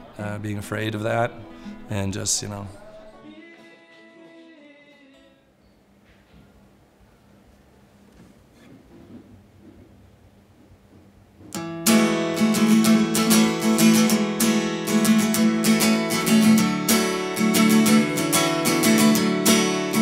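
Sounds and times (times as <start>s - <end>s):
acoustic guitar strumming chords: 11.5s - 20.0s.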